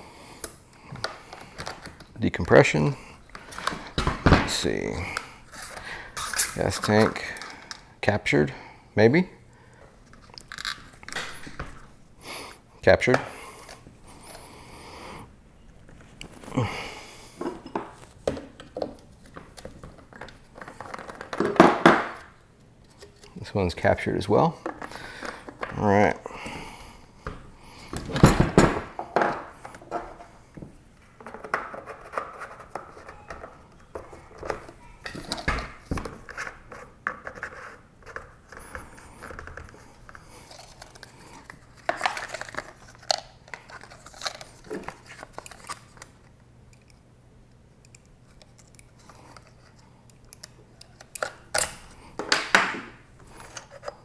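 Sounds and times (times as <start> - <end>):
plastic rustling: 15.7 - 21.9, 24.5 - 46.2
clicks and scrapes of handling: 17.3 - 23.5, 31.2 - 47.0, 47.8 - 54.0.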